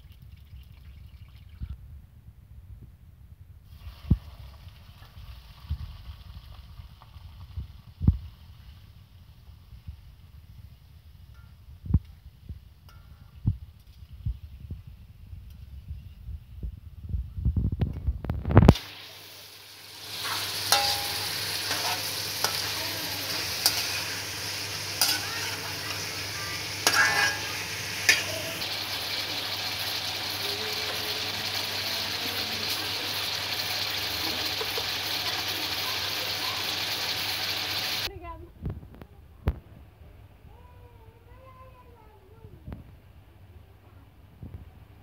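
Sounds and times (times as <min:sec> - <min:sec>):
meat sizzling in hot oil: 0:03.7 - 0:11.2, 0:18.2 - 0:38.1
metal spatula scraping a pan: 0:20.0 - 0:28.6.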